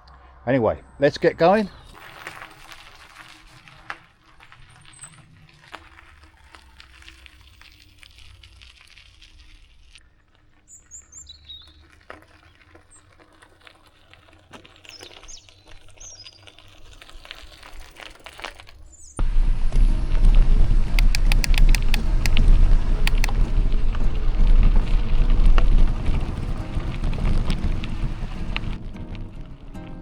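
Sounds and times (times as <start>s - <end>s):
small birds chirping: 10.0s - 13.2s, 14.8s - 17.7s
loud low rush: 19.2s - 30.0s.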